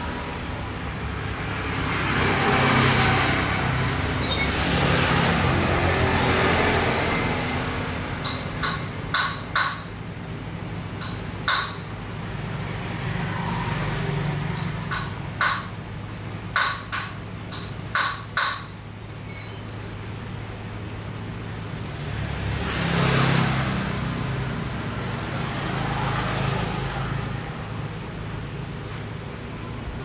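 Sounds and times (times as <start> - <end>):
sharp irregular taps: 8.2 - 10.0, 11.0 - 12.0, 14.6 - 15.8, 16.6 - 18.8.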